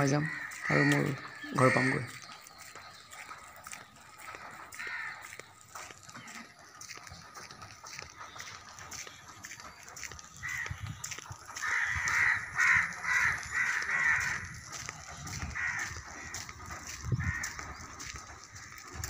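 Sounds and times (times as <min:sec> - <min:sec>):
bird calling: 0:00.0 - 0:06.6.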